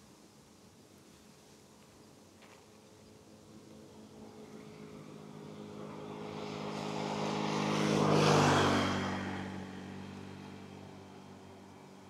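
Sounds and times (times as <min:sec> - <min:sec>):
vehicle passing by: 0:03.4 - 0:12.0.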